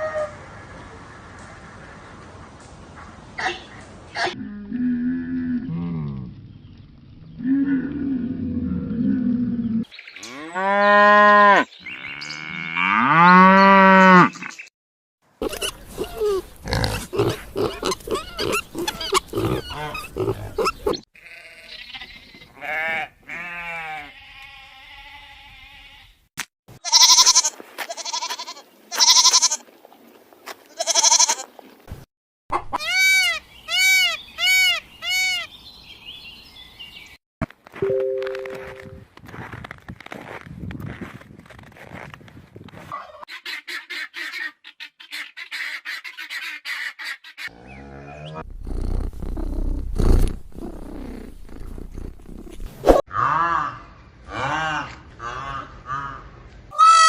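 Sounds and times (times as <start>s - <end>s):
loud pitched animal calls: 15.4s - 22.0s.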